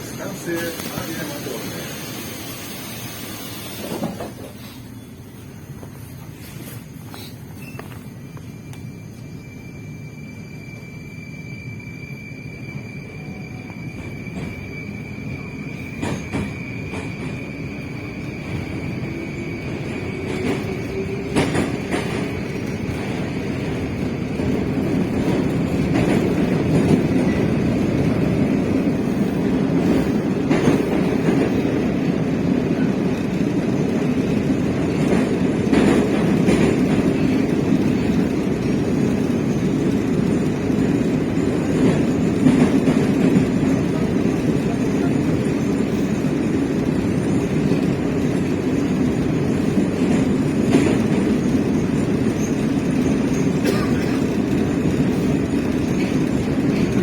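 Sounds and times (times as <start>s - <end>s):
train rumble: 0.0s - 57.0s
wheels clacking on rail joints: 19.6s - 32.7s, 33.3s - 57.0s.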